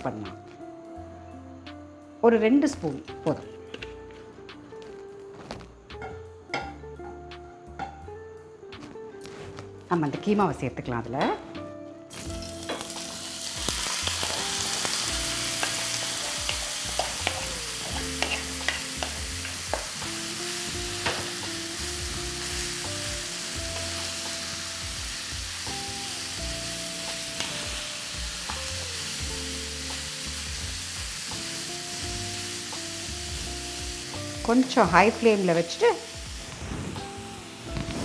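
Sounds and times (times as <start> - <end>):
meat sizzling in oil: 12.1 - 38.0.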